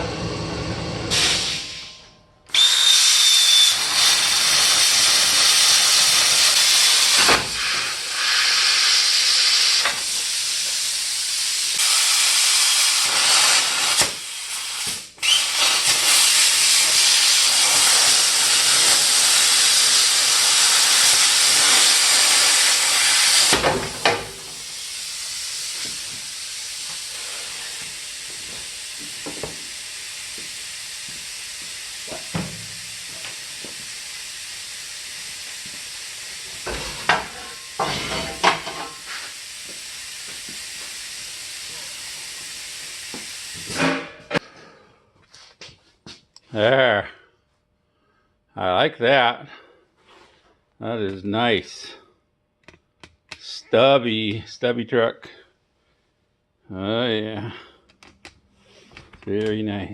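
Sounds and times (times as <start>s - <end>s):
metal-cutting tool cutting steel: 36.6s - 39.1s.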